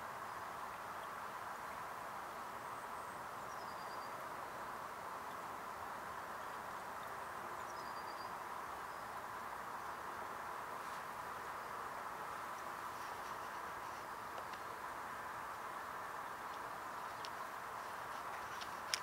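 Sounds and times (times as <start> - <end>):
outdoor background hiss: 0.0 - 19.0
faint whistling bird calls: 3.5 - 4.2.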